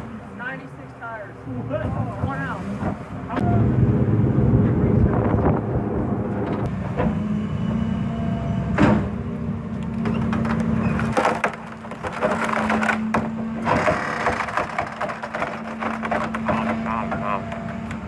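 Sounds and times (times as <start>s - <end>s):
wood cracking and splintering: 9.9s - 18.0s.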